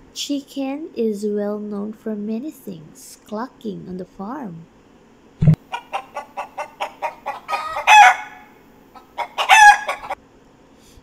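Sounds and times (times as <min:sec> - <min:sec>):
chicken clucking: 0:05.7 - 0:08.4, 0:09.0 - 0:10.2.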